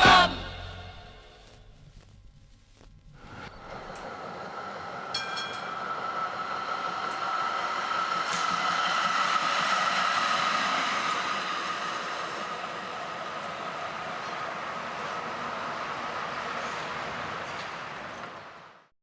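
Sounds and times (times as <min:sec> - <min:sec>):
short ringing strike: 0:00.0 - 0:01.6
tram rumbling on rails: 0:00.0 - 0:01.8, 0:03.1 - 0:18.8
high whine: 0:00.0 - 0:12.7.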